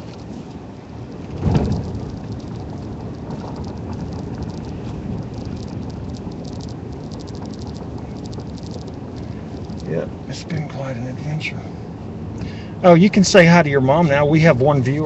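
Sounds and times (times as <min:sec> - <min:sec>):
tyres rumbling on snowy road: 0:00.0 - 0:15.0
thump: 0:01.3 - 0:02.1.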